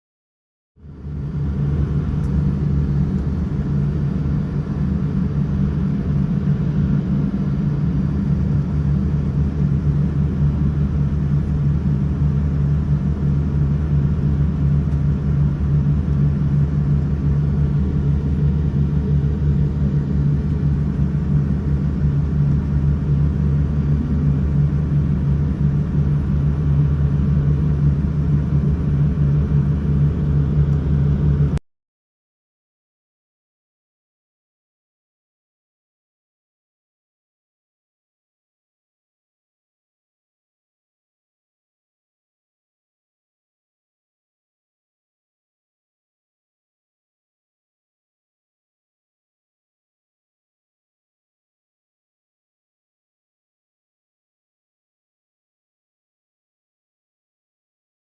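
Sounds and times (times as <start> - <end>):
vehicle interior rumble: 1.1 - 31.6.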